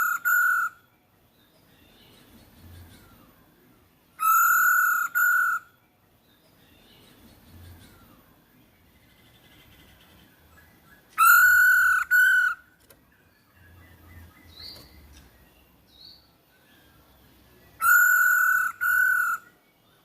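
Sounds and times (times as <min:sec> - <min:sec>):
bird giving harsh call: 0:00.0 - 0:00.8, 0:04.2 - 0:05.7, 0:11.2 - 0:12.7, 0:17.8 - 0:19.5.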